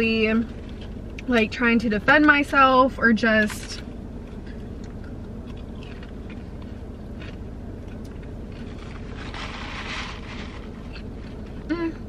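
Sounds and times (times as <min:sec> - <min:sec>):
steady low hum: 0:00.0 - 0:12.0
chewing food: 0:03.8 - 0:09.4.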